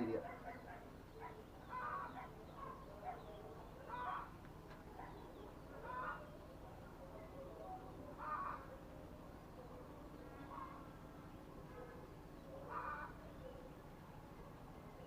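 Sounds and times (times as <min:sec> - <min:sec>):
bird calling: 0:00.0 - 0:15.0
faint bird chirps: 0:05.0 - 0:15.0.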